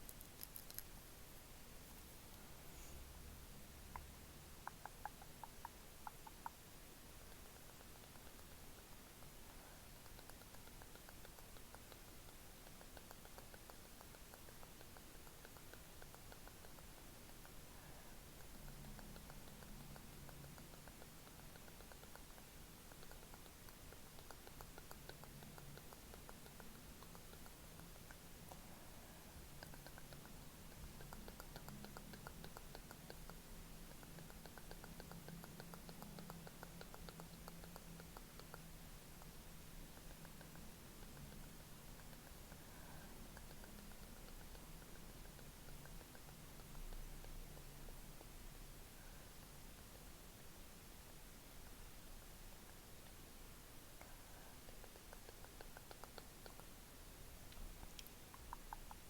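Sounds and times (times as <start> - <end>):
small soft clicks: 0.0 - 1.0, 57.5 - 59.0
faint low hum: 0.0 - 59.0
steady hiss: 0.0 - 59.0.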